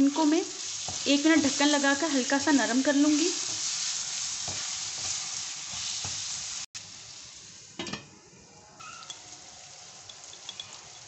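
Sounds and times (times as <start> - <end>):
tomatoes sizzling in hot oil: 0.0 - 7.9, 8.8 - 11.0
wooden spatula stirring and scraping: 3.2 - 6.6.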